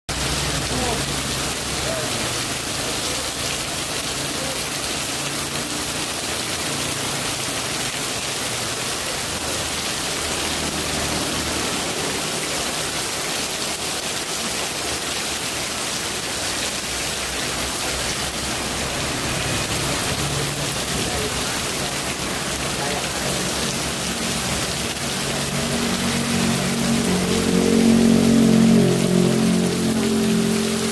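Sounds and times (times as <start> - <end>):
heavy rain falling: 0.1 - 30.9.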